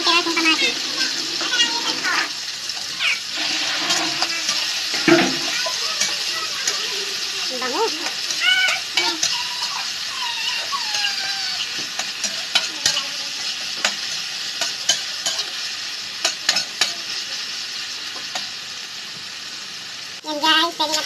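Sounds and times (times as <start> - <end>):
vegetables sizzling in hot oil: 0.0 - 21.0
utensil scraping pan: 0.7 - 6.8.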